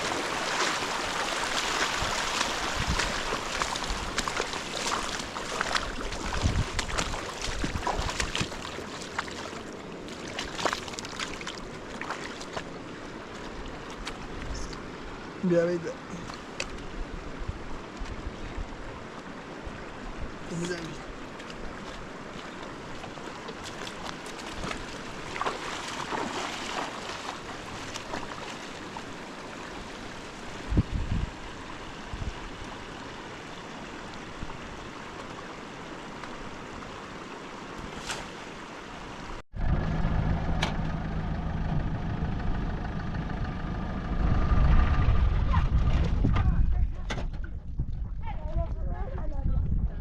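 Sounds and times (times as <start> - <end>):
river water rushing: 0.0 - 30.7, 31.3 - 39.4
low motor hum: 39.5 - 48.2.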